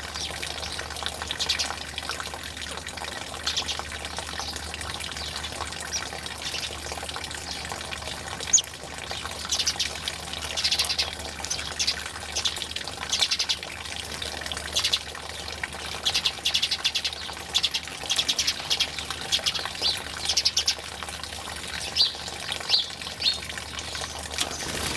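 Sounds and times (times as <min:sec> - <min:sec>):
running water: 0:00.0 - 0:24.9
birds chirping: 0:00.1 - 0:01.8, 0:03.4 - 0:06.8, 0:08.4 - 0:13.7, 0:14.6 - 0:20.9, 0:21.8 - 0:24.9.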